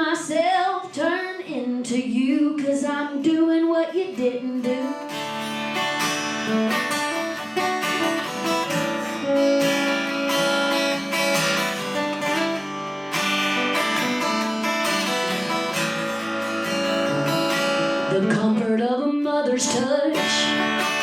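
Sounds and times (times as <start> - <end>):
person singing: 0.0 - 5.1, 16.7 - 21.0
acoustic guitar strumming: 3.9 - 21.0.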